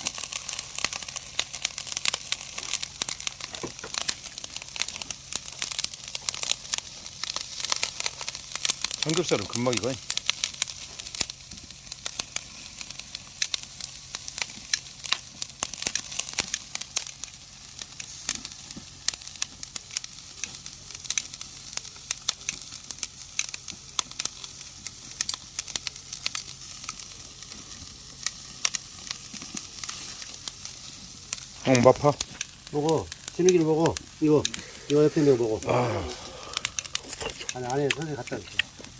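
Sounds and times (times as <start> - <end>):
fire popping and crackling: 0.0 - 38.9
pork sizzling on a grill: 0.0 - 38.9.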